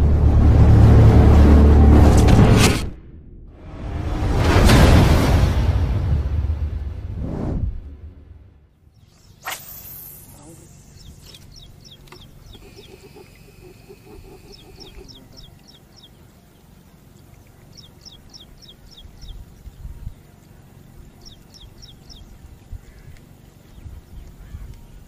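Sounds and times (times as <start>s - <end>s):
bird chirping: 9.0s - 25.0s
low rapid pulsing bird call: 9.0s - 25.0s.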